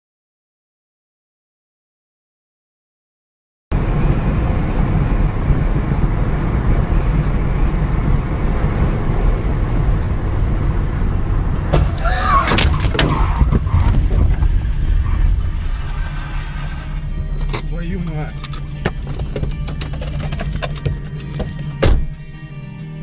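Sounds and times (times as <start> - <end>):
car road and engine rumble: 3.7 - 23.0
wavering squeal: 11.9 - 17.5.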